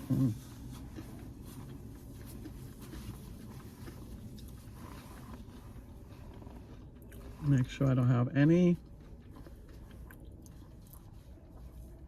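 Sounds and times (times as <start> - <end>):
faint rustles and ticks: 0.0 - 12.0
low car cabin hum: 0.0 - 12.0.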